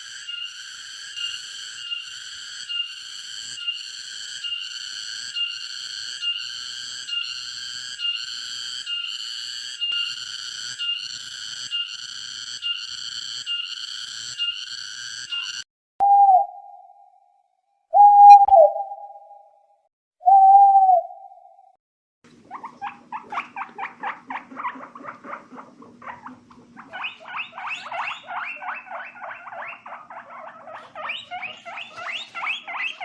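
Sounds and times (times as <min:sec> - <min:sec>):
low whistle-like tone: 0:16.0 - 0:17.2, 0:17.9 - 0:21.8
high-pitched animal call: 0:18.0 - 0:19.4, 0:22.5 - 0:33.0.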